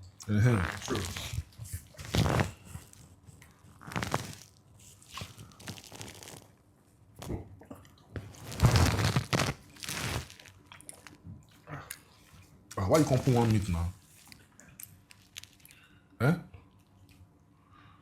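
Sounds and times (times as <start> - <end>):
person chewing: 0.6 - 6.5, 7.6 - 15.9.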